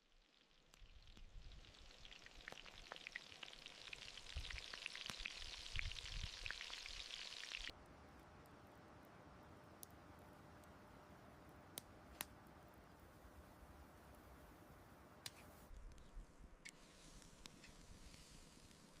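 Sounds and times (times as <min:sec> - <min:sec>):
food sizzling in hot oil: 0:00.0 - 0:07.7.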